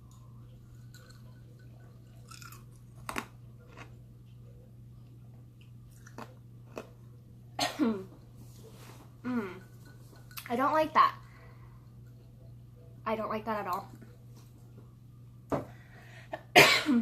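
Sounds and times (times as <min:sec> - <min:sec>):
low hum: 0:00.0 - 0:16.7
person chewing: 0:02.2 - 0:04.0, 0:05.6 - 0:07.0.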